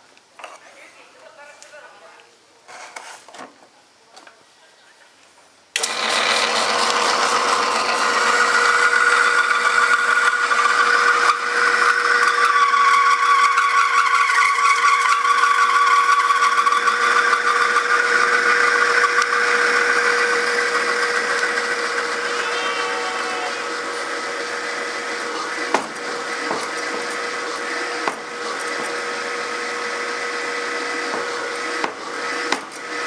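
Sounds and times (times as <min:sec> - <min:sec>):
machine motor humming: 0:19.6 - 0:33.0
wavering high-pitched squeal: 0:22.0 - 0:24.5.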